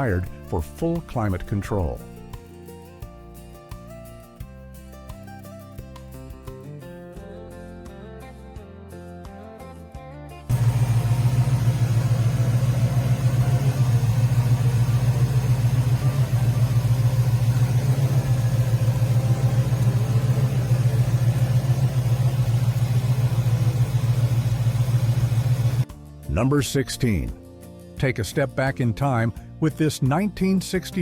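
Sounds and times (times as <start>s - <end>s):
car engine idling: 10.5s - 25.8s.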